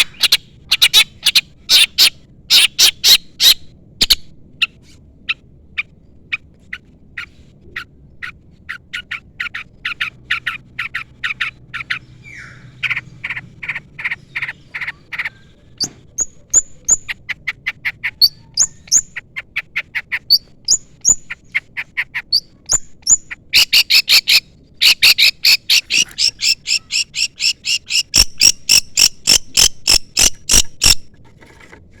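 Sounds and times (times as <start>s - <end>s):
shrike chirping calls: 0.0s - 31.0s.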